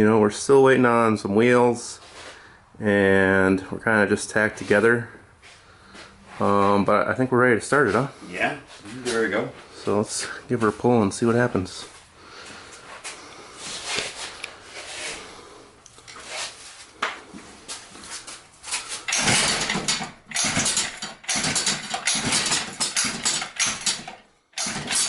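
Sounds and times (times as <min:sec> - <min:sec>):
engine turning over: 0:18.7 - 0:25.0
recoil starter cord pulls: 0:18.8 - 0:25.0.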